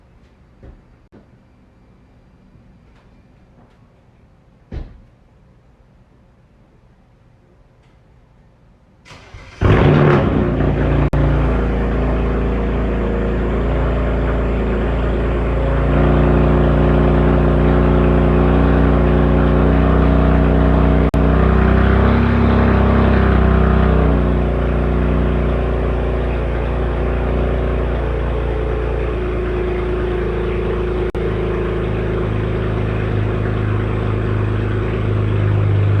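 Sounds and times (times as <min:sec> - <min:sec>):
car engine revving and idling: 0:09.1 - 0:36.0.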